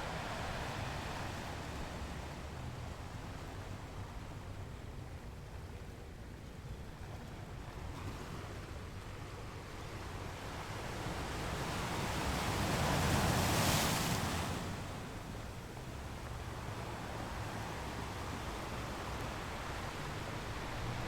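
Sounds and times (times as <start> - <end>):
ocean waves breaking: 10.7 - 21.0.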